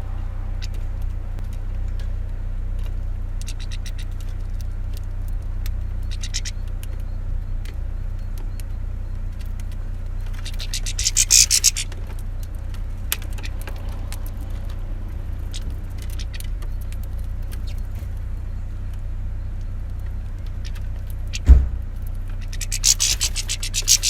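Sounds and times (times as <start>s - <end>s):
steady low rumble: 0.0s - 24.0s
heavy thump: 21.4s - 22.0s.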